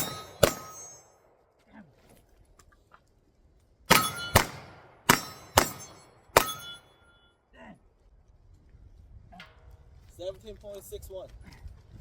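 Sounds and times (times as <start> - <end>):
pistol shots: 0.0 - 1.1, 3.9 - 6.8
steel targets ringing: 0.0 - 1.2, 3.9 - 7.3.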